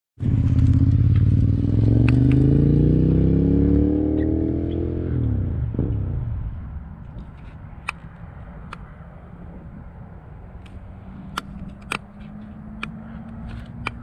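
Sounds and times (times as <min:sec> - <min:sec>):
motorcycle engine accelerating: 0:00.2 - 0:06.9, 0:10.5 - 0:14.0.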